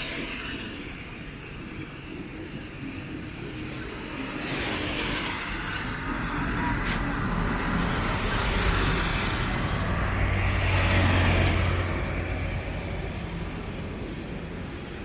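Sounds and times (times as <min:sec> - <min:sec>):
street traffic noise: 0:00.0 - 0:15.0
vehicle driving past: 0:04.4 - 0:13.8.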